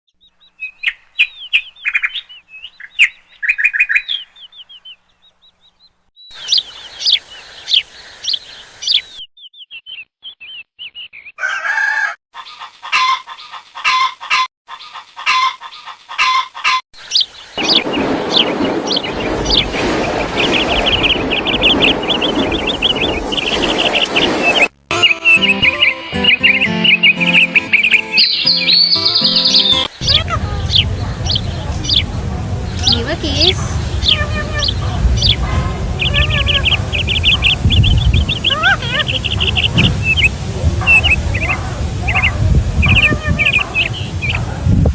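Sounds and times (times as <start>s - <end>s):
birds chirping: 0.1s - 12.7s, 15.6s - 44.9s
steady noisy background: 29.9s - 44.7s.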